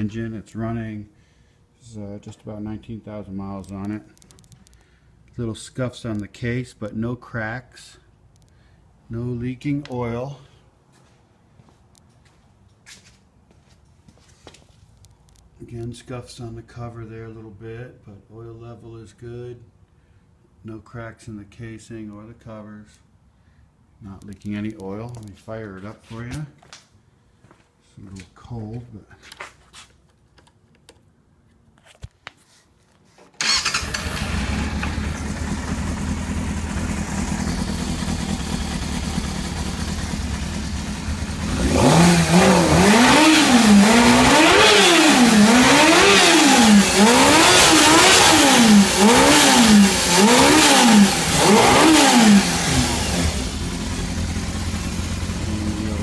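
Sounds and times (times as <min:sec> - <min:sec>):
motorcycle engine idling and revving: 0:33.4 - 0:56.0.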